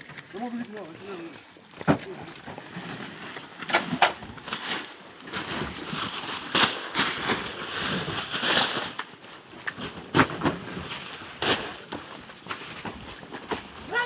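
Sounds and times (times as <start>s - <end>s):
sharp cracks and pops: 3.4s - 10.6s.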